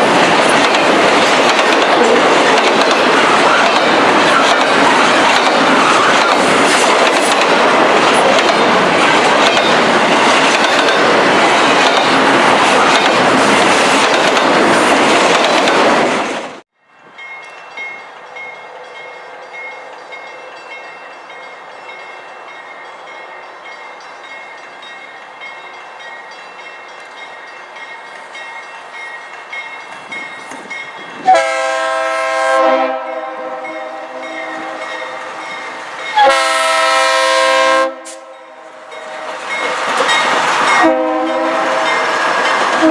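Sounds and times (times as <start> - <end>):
train passing wheel and rail noise: 0.0 - 42.9
train horn: 31.2 - 35.5, 36.2 - 39.5, 40.8 - 42.1.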